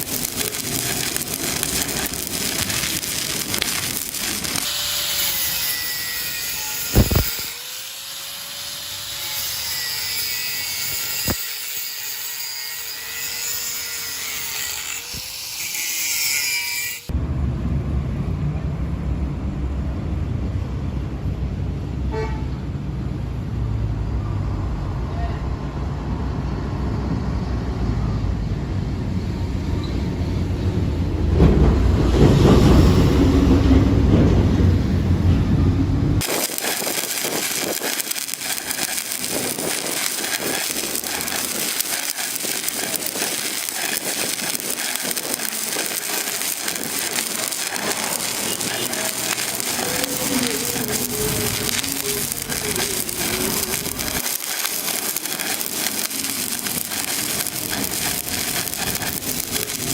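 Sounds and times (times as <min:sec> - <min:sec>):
welding arc crackling and sizzling: 0:00.0 - 0:17.2, 0:36.2 - 0:59.9
person speaking: 0:47.2 - 0:54.4.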